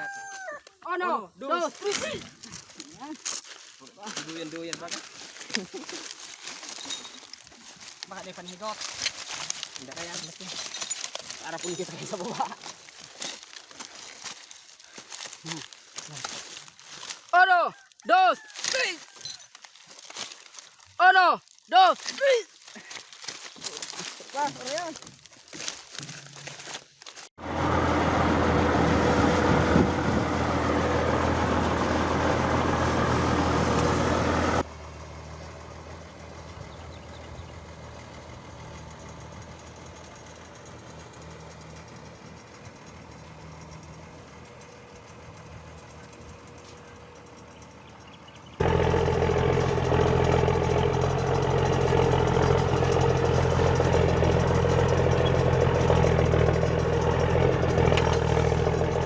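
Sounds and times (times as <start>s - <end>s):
truck engine idling hum: 1.4s - 17.5s, 27.4s - 59.0s.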